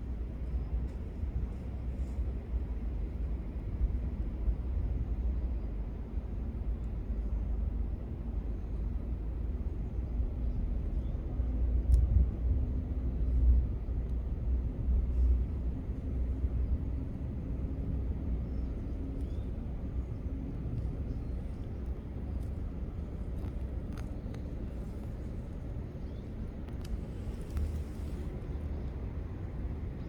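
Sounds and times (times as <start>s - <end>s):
faint hum: 0.0s - 30.0s
faint high ticks: 11.9s - 12.1s.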